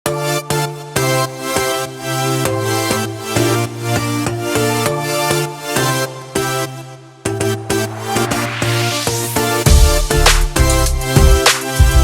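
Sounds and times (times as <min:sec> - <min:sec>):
electronic music with steady beat: 0:00.1 - 0:12.0.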